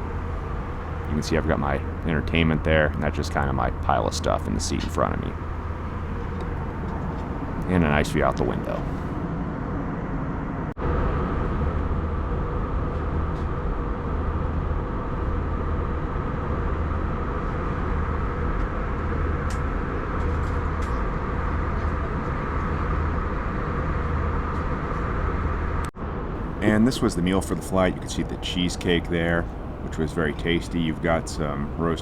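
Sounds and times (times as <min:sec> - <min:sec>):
aircraft engines droning: 0:00.0 - 0:32.0
low hum: 0:00.0 - 0:32.0.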